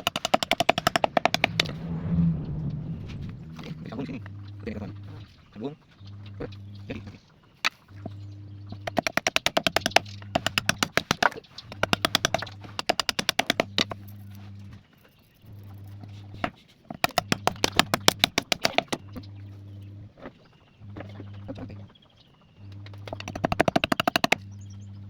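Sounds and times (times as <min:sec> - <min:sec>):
rapid sharp tapping: 0:00.0 - 0:01.7, 0:08.8 - 0:14.0, 0:17.0 - 0:19.0, 0:22.7 - 0:24.5
steady low hum: 0:00.6 - 0:09.0, 0:17.2 - 0:25.0.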